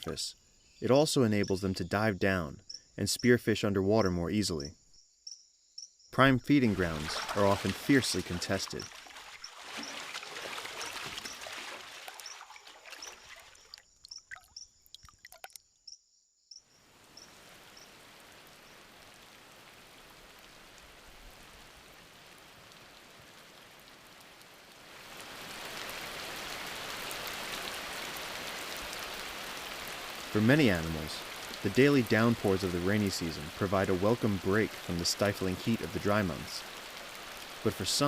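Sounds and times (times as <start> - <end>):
rain hissing: 6.4 - 13.8, 16.8 - 38.0
water dripping: 6.4 - 16.0, 17.1 - 38.0
water splashing and pouring: 6.5 - 15.7, 24.9 - 38.0.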